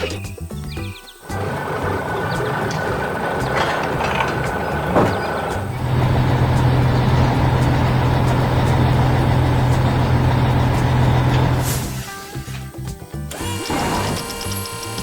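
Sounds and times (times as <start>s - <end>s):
truck engine running: 1.2s - 12.6s.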